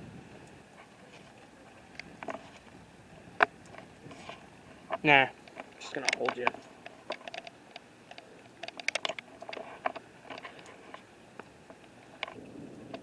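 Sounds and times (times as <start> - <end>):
camera handling clicks and taps: 5.5 - 11.0.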